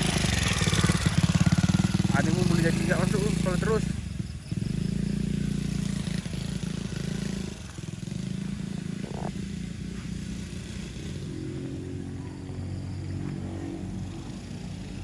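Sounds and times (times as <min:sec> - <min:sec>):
motocross bike engine running: 0:00.0 - 0:15.0.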